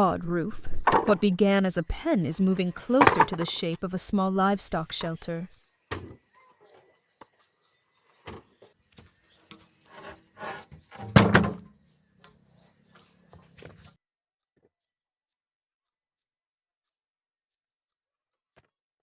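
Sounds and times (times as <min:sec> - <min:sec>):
wooden knocks and thuds: 0:00.8 - 0:01.2, 0:02.9 - 0:03.5, 0:10.4 - 0:11.7.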